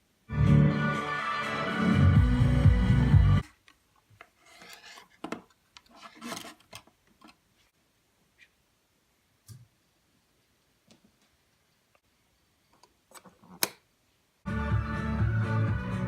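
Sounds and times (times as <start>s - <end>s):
faint scraping and rubbing: 4.2s - 8.6s
loud organ music: 14.5s - 16.0s.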